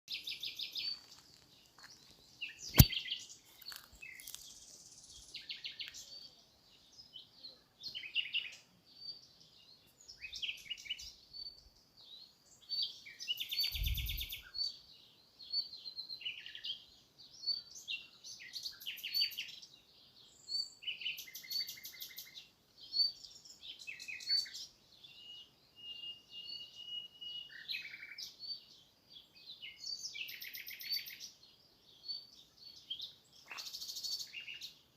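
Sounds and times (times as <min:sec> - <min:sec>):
small birds chirping: 0:00.0 - 0:34.9
sharp click: 0:02.7 - 0:03.0.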